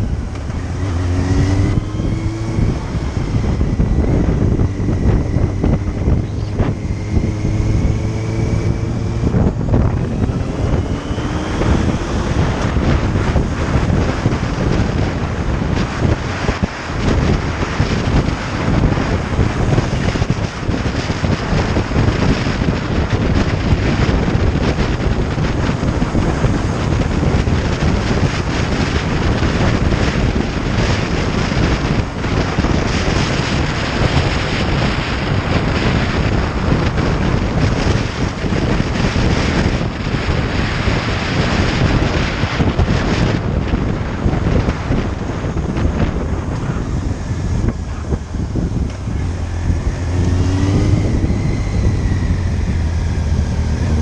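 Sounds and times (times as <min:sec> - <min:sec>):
motorcycle noise: 0:00.0 - 0:54.0
wind rushing over microphone: 0:00.0 - 0:54.0.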